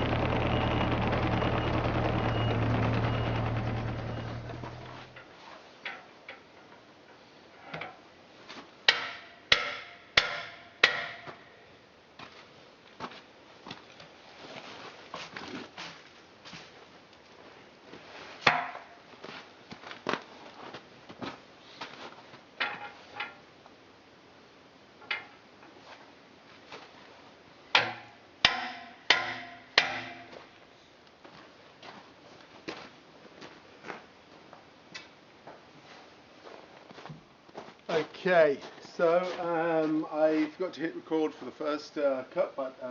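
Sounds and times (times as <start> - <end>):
sharp ringing knocks: 27.8 - 30.4.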